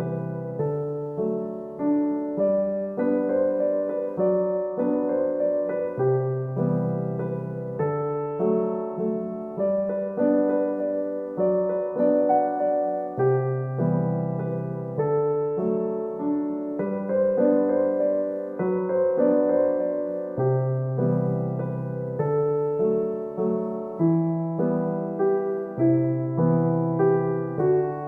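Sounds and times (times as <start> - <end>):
gentle solo piano piece: 0.0 - 28.0.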